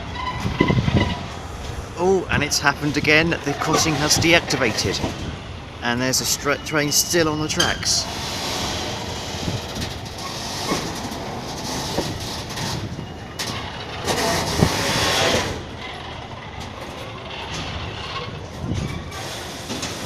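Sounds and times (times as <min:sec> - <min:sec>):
train rumbling: 0:00.0 - 0:20.0
wheels thumping over rail joints: 0:07.6 - 0:20.0.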